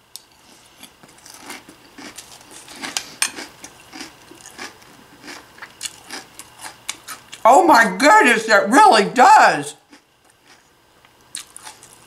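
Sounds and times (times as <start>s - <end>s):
person chewing crunchy cereal: 0.4s - 7.4s, 9.8s - 12.0s.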